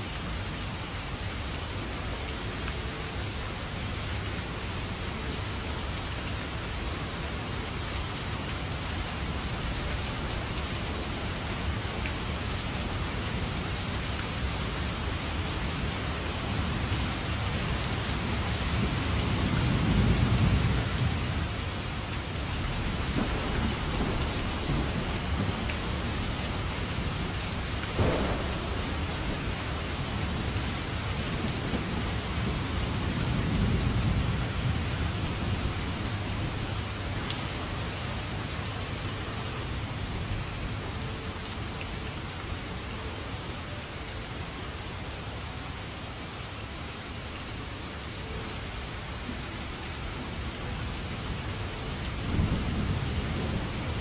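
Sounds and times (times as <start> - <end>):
heavy rain falling: 0.0 - 54.0
low thunder rumbling: 22.7 - 36.6, 52.2 - 54.0
sharp thunder crack: 28.0 - 30.1.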